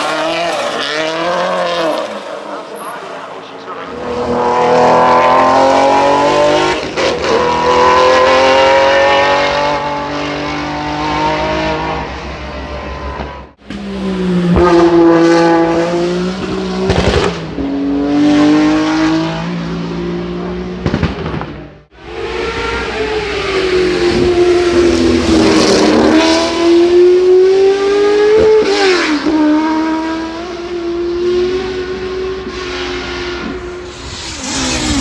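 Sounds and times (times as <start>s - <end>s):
engine crackle: 0.0s - 3.9s, 33.3s - 35.0s
racing car engines revving: 0.0s - 35.0s.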